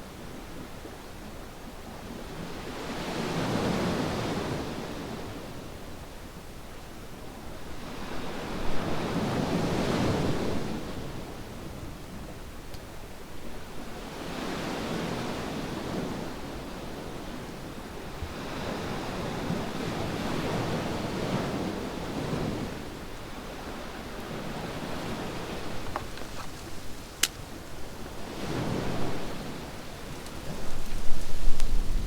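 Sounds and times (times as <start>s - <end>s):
sea waves washing onto beach: 13.8s - 32.0s
campfire pops: 25.8s - 27.6s.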